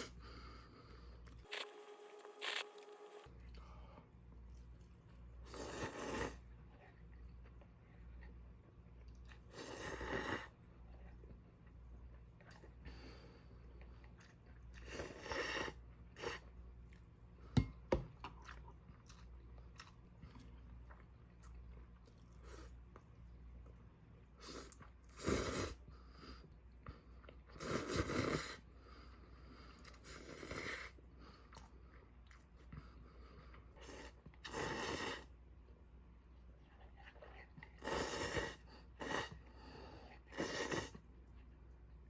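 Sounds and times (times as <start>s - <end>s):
person chewing and crunching: 18.1s - 23.1s.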